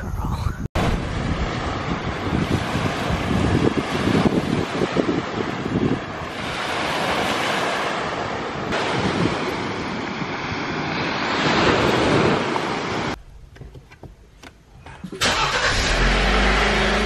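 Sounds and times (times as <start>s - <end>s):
surf: 0.0s - 13.2s
wind on microphone: 0.0s - 13.2s
car engine starting and idling: 15.0s - 17.0s.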